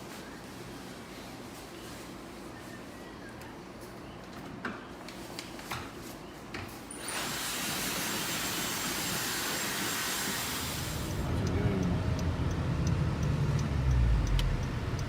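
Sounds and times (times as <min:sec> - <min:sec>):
hair dryer blowing: 0:07.0 - 0:11.3.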